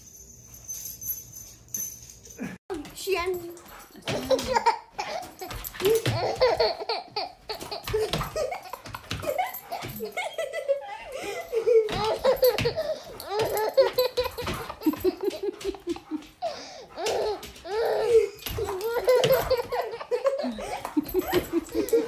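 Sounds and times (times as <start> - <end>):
person laughing hard: 13.8 - 16.6, 19.2 - 22.0.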